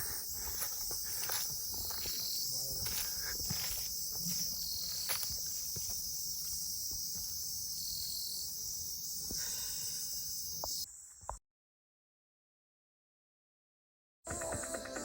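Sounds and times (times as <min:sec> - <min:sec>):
faint footsteps: 0:00.0 - 0:07.6
insects shrilling: 0:00.0 - 0:10.9.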